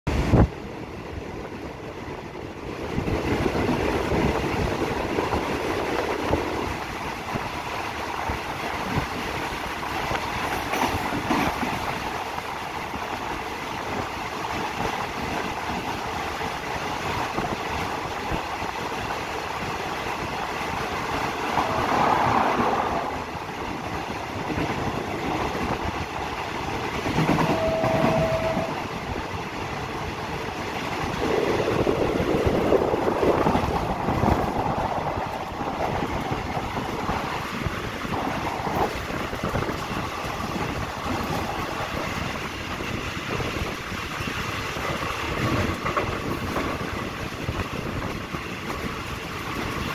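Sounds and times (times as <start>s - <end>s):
train carriage rumble: 0.1s - 49.9s
wheels knocking and clacking: 3.0s - 21.7s, 23.2s - 49.9s
short high tone: 27.4s - 28.8s.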